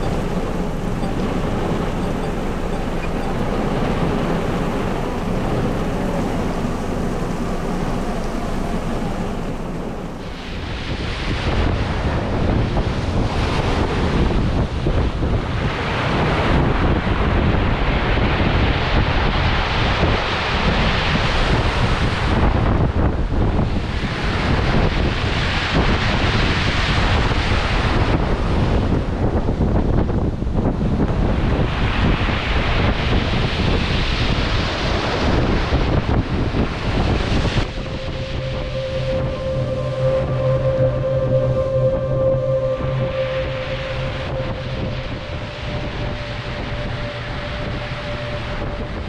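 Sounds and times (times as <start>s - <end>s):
strong wind buffeting microphone: 0.0s - 49.0s.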